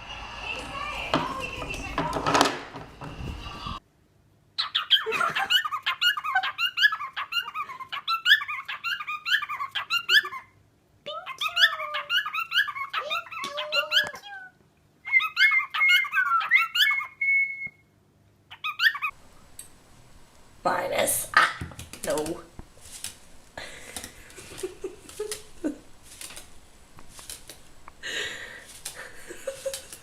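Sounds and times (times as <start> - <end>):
parrot chirping squeaks: 4.6 - 10.5, 11.3 - 14.5, 15.1 - 17.2, 18.5 - 19.2
parrot whistle: 15.0 - 17.9.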